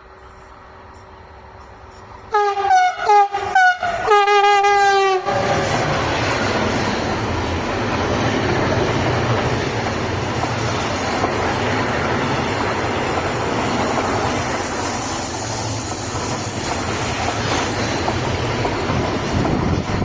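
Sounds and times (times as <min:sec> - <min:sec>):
train rumbling past: 0:00.0 - 0:20.0
train horn blasts: 0:02.3 - 0:06.1.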